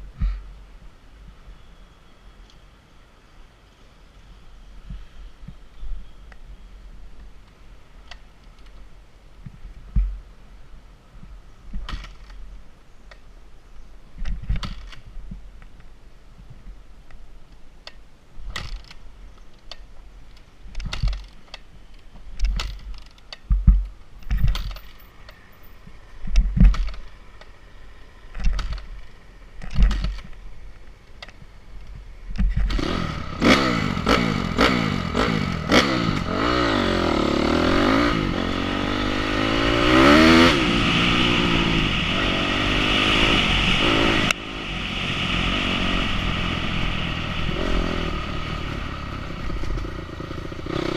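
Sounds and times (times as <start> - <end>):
thumps and clicks: 17.9 - 25.4, 26.2 - 27.5, 29.6 - 30.4, 31.1 - 32.8
motorcycle engine revving: 32.5 - 50.9.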